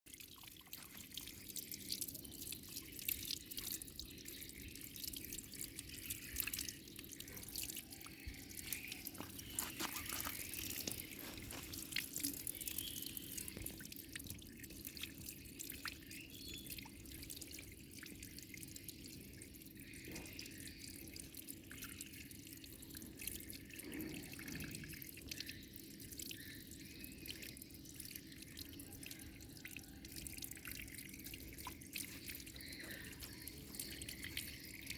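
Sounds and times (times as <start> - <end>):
running water splashing: 7.2 - 15.3.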